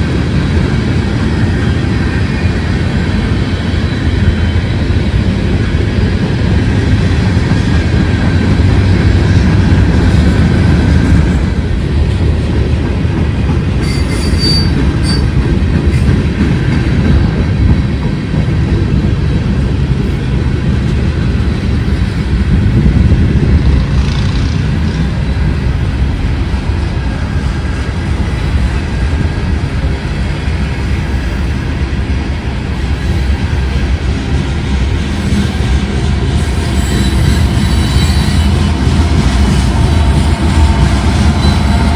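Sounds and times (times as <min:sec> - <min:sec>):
train cars rumbling on track: 0:00.0 - 0:41.9
high wheel squeal: 0:13.8 - 0:15.4, 0:36.4 - 0:41.9.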